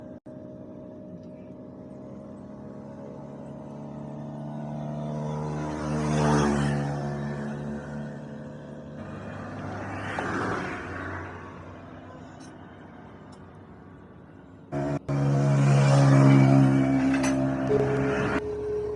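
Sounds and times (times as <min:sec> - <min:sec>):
motorcycle engine running: 0:00.0 - 0:05.9, 0:14.7 - 0:18.9.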